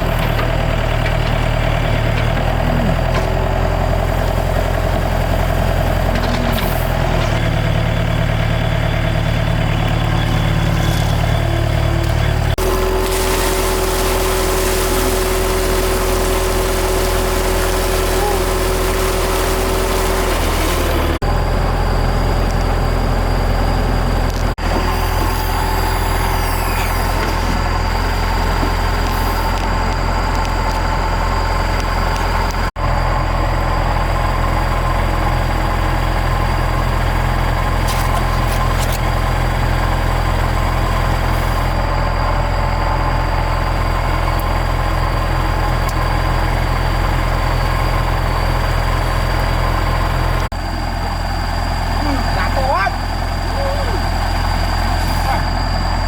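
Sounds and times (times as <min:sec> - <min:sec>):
excavator diesel engine droning: 0:00.0 - 0:56.0.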